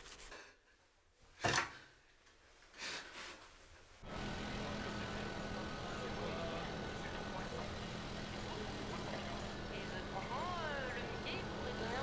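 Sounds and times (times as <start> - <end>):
town traffic: 4.1 - 12.0.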